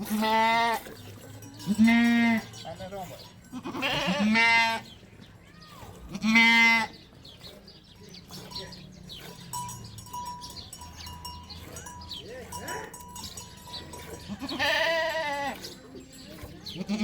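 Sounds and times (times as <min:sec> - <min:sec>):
sheep or goat bleating: 0:00.0 - 0:00.8, 0:01.7 - 0:02.6, 0:03.4 - 0:07.0, 0:14.2 - 0:15.6, 0:16.7 - 0:17.0
thin ringing tones: 0:09.4 - 0:16.4.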